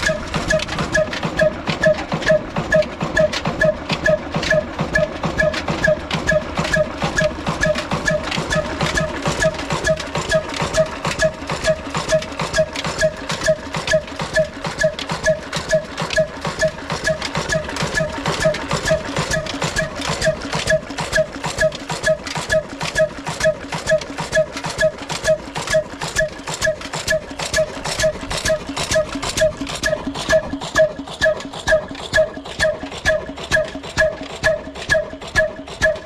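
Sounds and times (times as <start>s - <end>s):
diesel engine chugging: 0.0s - 36.0s.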